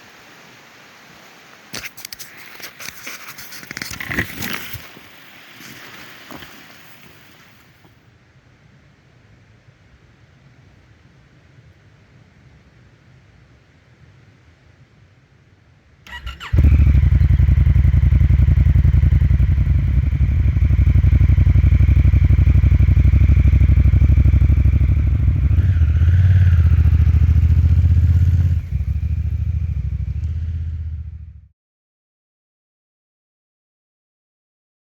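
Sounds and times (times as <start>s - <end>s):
motorcycle starter cranking: 16.1s - 28.2s
motorcycle engine running: 16.1s - 31.5s.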